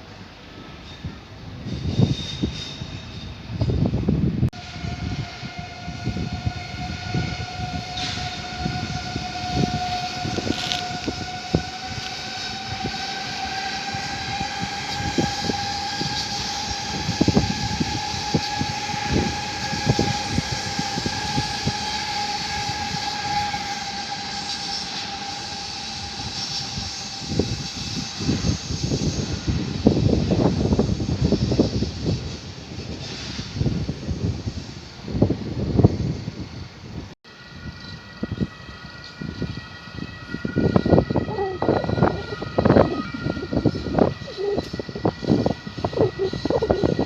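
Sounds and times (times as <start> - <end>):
train running: 0.0 - 47.0
steady whine: 37.3 - 47.0.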